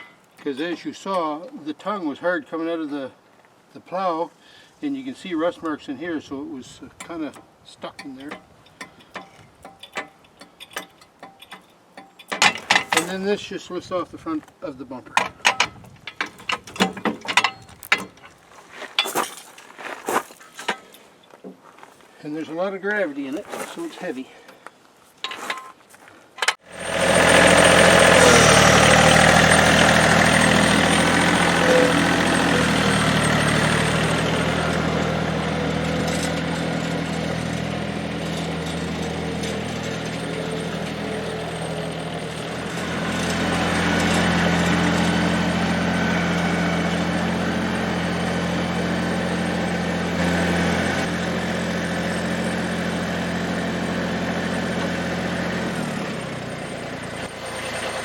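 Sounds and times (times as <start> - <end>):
diesel tractor engine running: 26.6 - 58.0.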